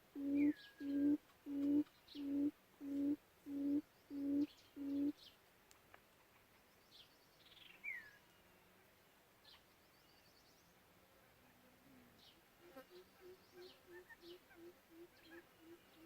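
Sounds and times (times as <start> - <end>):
quail hooting call: 0.1 - 5.2, 12.9 - 16.0
small birds chirping: 0.1 - 5.4, 6.2 - 8.5, 13.0 - 16.0.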